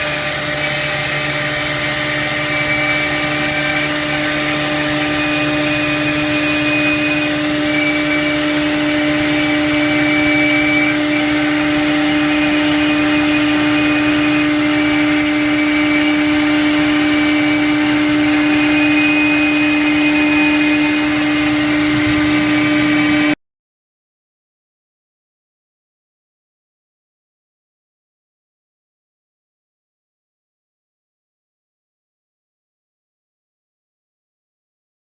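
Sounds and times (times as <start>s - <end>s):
cnc router spindle whine: 0.0s - 23.4s
cutter hissing in board: 0.0s - 23.4s.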